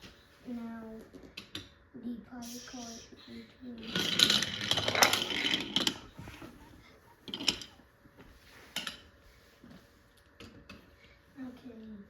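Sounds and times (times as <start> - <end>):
wooden toy train clattering on track: 3.8 - 6.6, 7.2 - 7.8.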